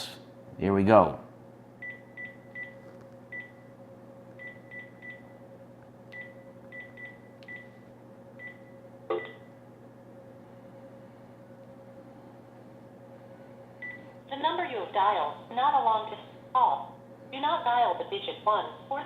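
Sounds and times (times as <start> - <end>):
faint steady hum: 0.0 - 19.0
phone keypad beeps: 6.2 - 7.7.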